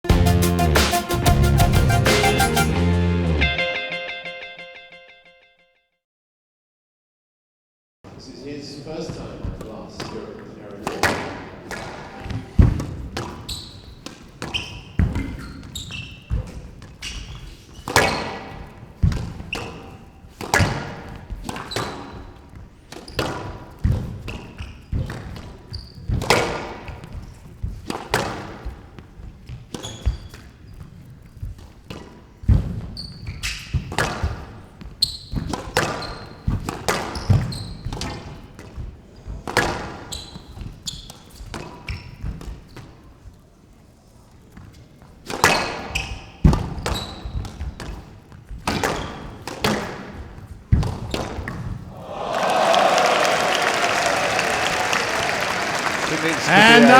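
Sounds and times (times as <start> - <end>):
shoes squeaking on court floor: 9.0 - 43.4, 44.3 - 51.9
ball slapping court walls: 10.8 - 22.2, 45.2 - 51.9.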